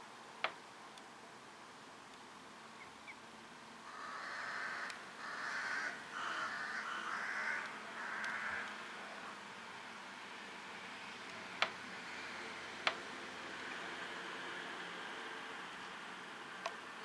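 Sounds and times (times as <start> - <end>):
bird harsh hoarse calls: 3.8 - 9.4.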